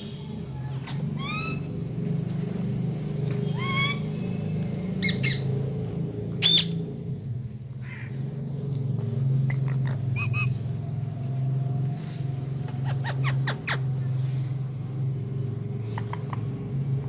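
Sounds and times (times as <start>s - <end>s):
parrot squawking: 1.1s - 1.7s, 3.5s - 4.2s, 5.0s - 5.5s, 6.4s - 6.8s, 9.6s - 10.6s, 12.7s - 13.9s.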